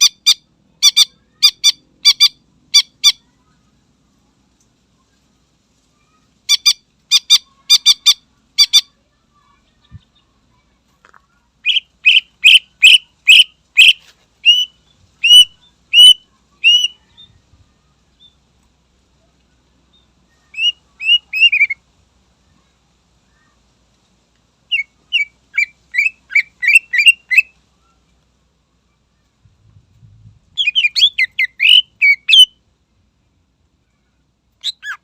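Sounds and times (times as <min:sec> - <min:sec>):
bird singing whistled notes: 0:11.6 - 0:17.4, 0:19.9 - 0:21.8, 0:24.7 - 0:27.6, 0:30.5 - 0:32.6, 0:34.6 - 0:35.0.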